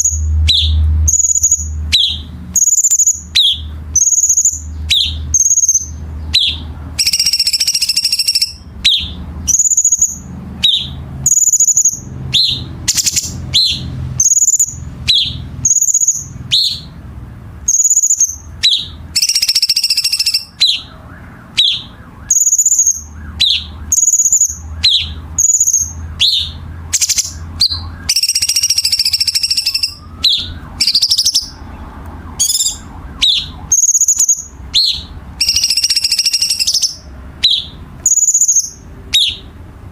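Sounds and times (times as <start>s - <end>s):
songbird chirping: 0.0s - 39.8s
harsh raspy bird notes: 0.0s - 39.9s.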